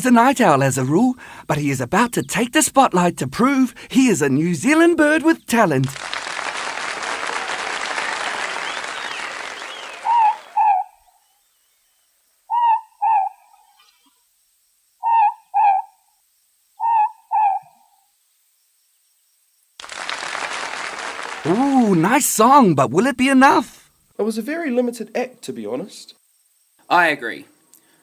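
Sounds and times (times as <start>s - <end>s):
owl two-note hoots: 9.6s - 11.0s, 12.5s - 14.2s, 15.0s - 16.0s, 16.8s - 18.0s.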